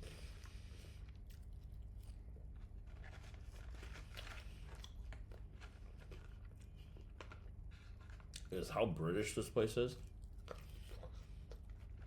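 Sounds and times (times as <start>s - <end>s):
person chewing food: 3.5s - 8.5s, 10.0s - 12.0s.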